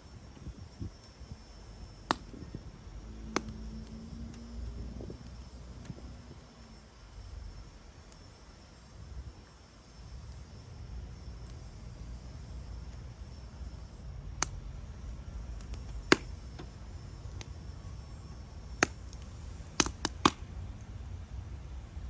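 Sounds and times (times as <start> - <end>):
wood fire crackling: 0.1 - 22.0
sharp fire pops: 1.8 - 6.1, 10.2 - 21.0.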